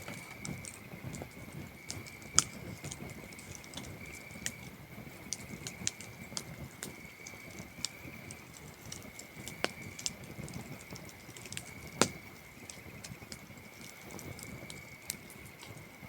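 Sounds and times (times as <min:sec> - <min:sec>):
campfire crackling and popping: 0:00.0 - 0:16.0
crickets trilling: 0:00.0 - 0:16.0.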